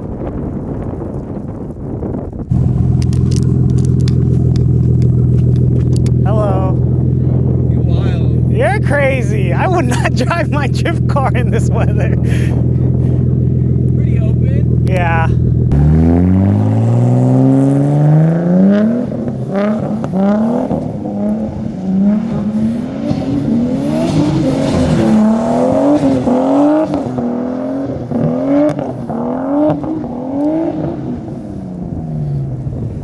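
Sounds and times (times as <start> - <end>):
car engine revving hard: 2.5 - 32.5.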